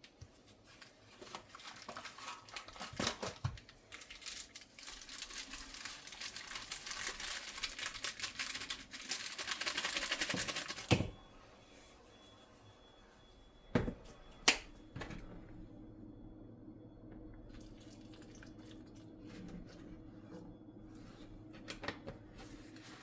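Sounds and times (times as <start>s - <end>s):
packaging crinkling: 0.7s - 10.9s.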